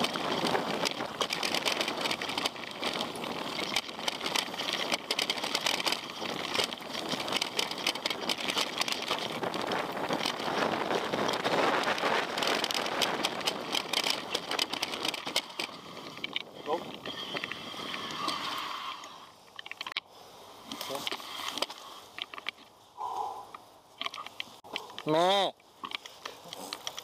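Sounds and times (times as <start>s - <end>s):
tyres rolling on gravel: 0.0s - 20.0s
bike rattling: 0.0s - 27.0s.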